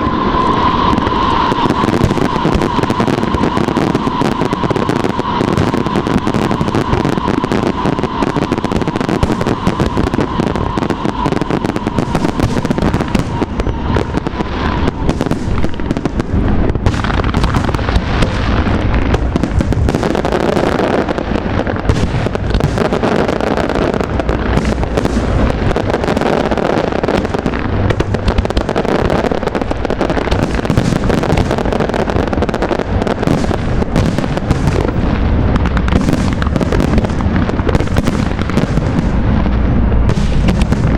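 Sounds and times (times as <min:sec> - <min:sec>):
fireworks bursting and crackling: 0:00.0 - 0:40.9.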